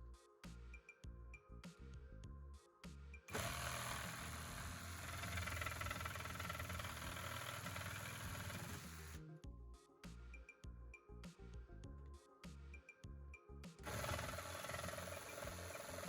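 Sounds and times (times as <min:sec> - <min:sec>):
background music: 0:00.0 - 0:16.0
cordless multi-tool running: 0:03.3 - 0:09.2, 0:13.8 - 0:16.0.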